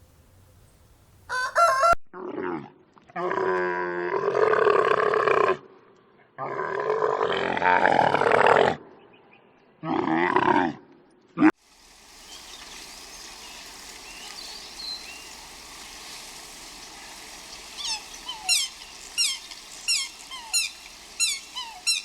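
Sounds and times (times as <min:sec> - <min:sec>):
loud drawn-out animal calls: 0:12.2 - 0:22.0
high wavering animal cry: 0:17.1 - 0:22.0.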